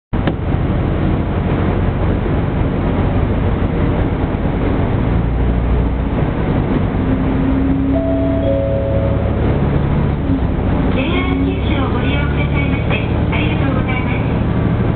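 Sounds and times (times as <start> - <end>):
train rumbling on track: 0.2 - 14.9
low steady tone: 7.8 - 10.7.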